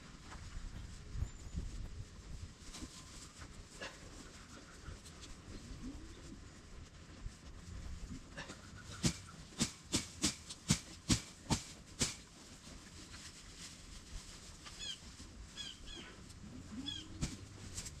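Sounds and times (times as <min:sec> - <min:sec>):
small bird chirping: 0:16.8 - 0:17.2.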